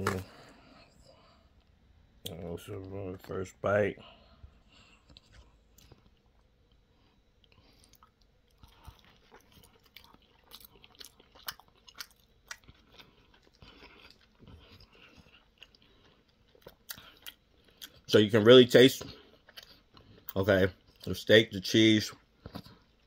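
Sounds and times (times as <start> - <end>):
person chewing sandwich: 4.3 - 18.1, 19.0 - 21.1, 22.2 - 23.0.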